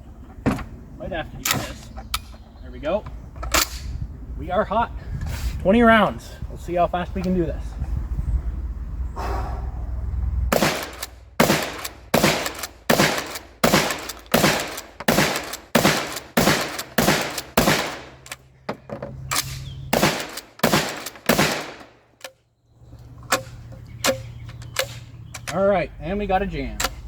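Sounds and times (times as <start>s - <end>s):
shotgun shots: 10.5s - 18.2s, 19.3s - 22.0s.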